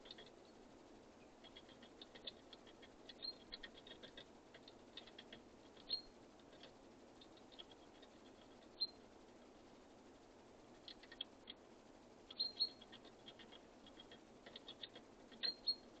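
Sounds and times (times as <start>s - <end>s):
birds pecking and tapping: 0.0s - 0.6s, 1.2s - 9.5s, 10.8s - 11.7s, 12.3s - 16.0s
high bird chip notes: 1.2s - 4.2s, 12.3s - 16.0s.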